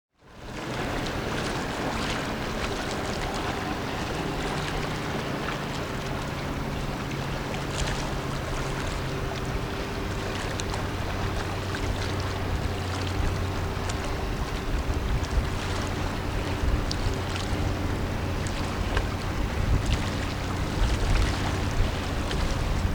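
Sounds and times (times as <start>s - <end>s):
boat engines droning: 0.2s - 22.9s
wind on microphone: 0.4s - 22.9s.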